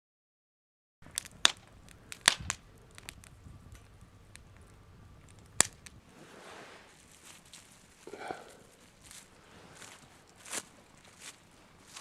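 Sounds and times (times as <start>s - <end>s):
wood fire crackling and popping: 1.0s - 12.0s.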